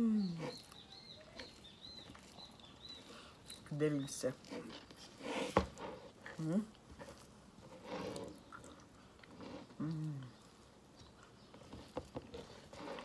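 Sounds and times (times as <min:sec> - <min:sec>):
person humming mmm: 0:00.0 - 0:00.6, 0:09.8 - 0:10.4
chewing and lip smacking: 0:00.4 - 0:03.7, 0:08.0 - 0:11.4.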